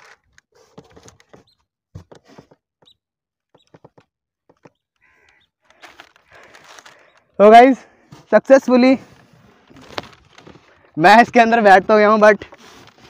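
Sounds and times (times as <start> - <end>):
styrofoam box squeaking: 0.0 - 7.2.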